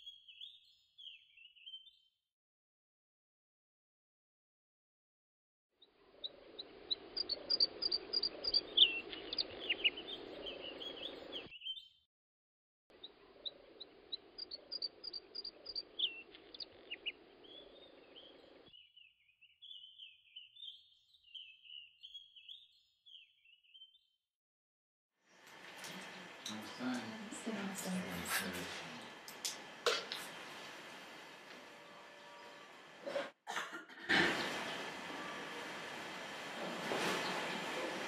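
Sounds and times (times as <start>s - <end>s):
bird warbling song: 0.0s - 2.1s, 6.2s - 12.0s, 13.0s - 24.1s
birds chirping and trilling: 0.0s - 2.1s, 5.8s - 12.0s, 13.0s - 24.2s.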